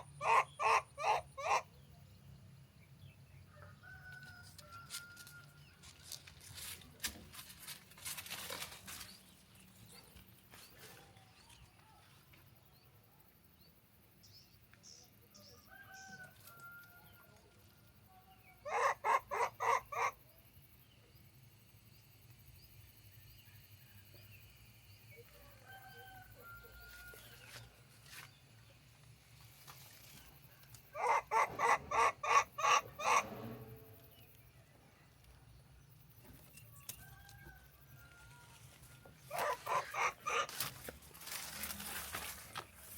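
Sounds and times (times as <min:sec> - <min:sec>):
chickens clucking: 0:00.0 - 0:01.7, 0:18.6 - 0:20.2, 0:30.4 - 0:34.2, 0:39.0 - 0:42.7
faint chicken calls: 0:00.0 - 0:01.9, 0:03.4 - 0:07.2, 0:15.4 - 0:20.5, 0:25.1 - 0:28.3, 0:29.7 - 0:35.1, 0:36.2 - 0:42.9.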